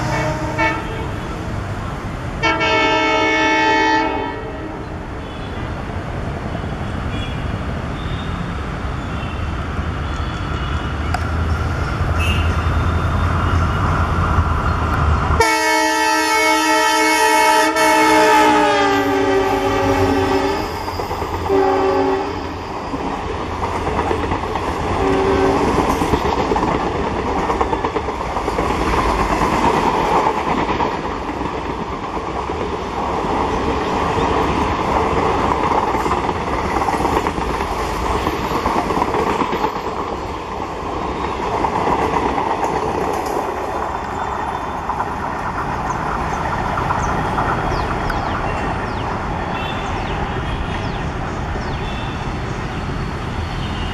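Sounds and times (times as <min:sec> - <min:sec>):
train horn blasts: 0:00.0 - 0:01.4, 0:02.4 - 0:05.5, 0:12.2 - 0:12.7, 0:15.4 - 0:20.8, 0:21.5 - 0:22.6, 0:25.0 - 0:25.7
coach wheels clickety-clack: 0:00.0 - 0:53.9
diesel locomotives rumbling: 0:00.0 - 0:53.9.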